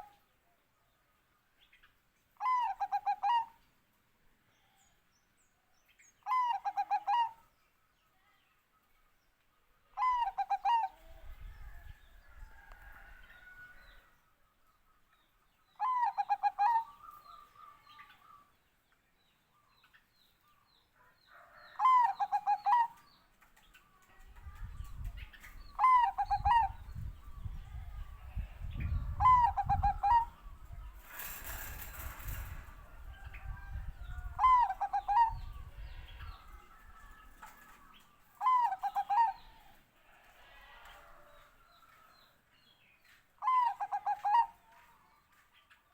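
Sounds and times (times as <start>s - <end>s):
dove cooing: 2.4s - 3.5s, 6.3s - 7.4s, 10.0s - 11.1s, 15.8s - 17.2s, 21.8s - 23.0s, 25.7s - 27.1s, 28.7s - 32.8s, 34.2s - 35.8s, 38.4s - 39.6s, 43.4s - 44.5s
noisy rustle: 30.8s - 33.3s.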